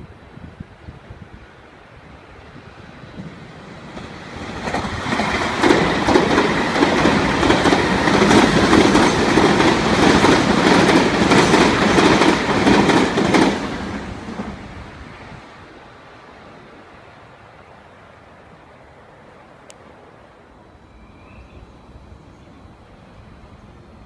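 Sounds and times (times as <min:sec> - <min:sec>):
electric train passing fast: 0:00.9 - 0:24.0
wheels clacking over rail joints: 0:03.2 - 0:14.7.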